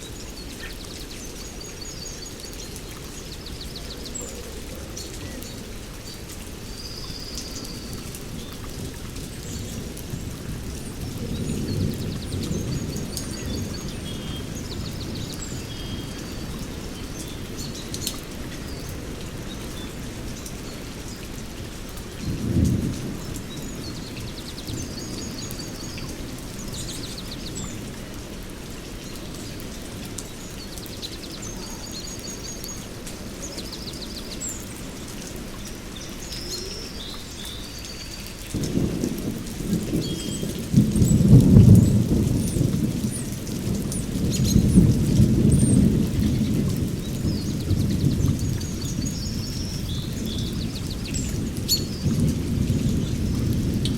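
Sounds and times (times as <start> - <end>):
steady rain: 0.0 - 53.9
thunder rolling: 38.5 - 48.5, 49.6 - 53.9.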